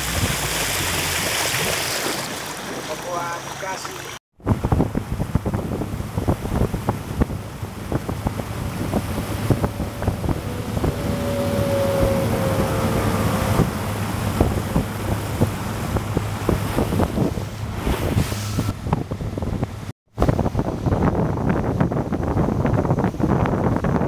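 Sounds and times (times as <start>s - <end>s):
motorboat engine running: 2.6s - 24.0s
wind buffeting microphone: 4.4s - 24.0s
high held whine: 6.6s - 16.5s.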